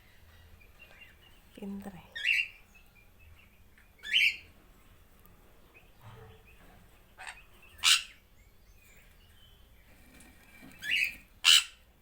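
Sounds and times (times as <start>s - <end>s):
parrot squawking: 7.2s - 8.2s, 10.8s - 11.8s.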